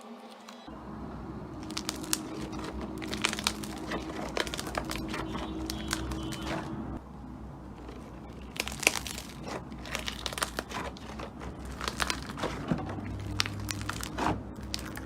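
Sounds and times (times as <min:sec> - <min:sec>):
slime squeezed and kneaded by hand: 0:01.6 - 0:06.8, 0:07.8 - 0:15.0.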